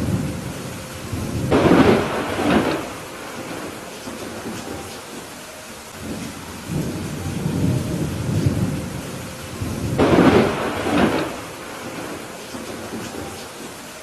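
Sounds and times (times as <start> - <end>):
steady rain: 0.0 - 14.0
thunder rumbling: 0.0 - 14.0.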